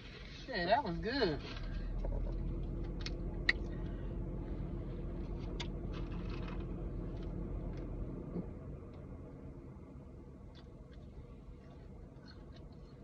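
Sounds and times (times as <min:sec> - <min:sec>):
low hum inside car: 0:00.0 - 0:13.0
person eating clicks and smacks: 0:12.1 - 0:13.0.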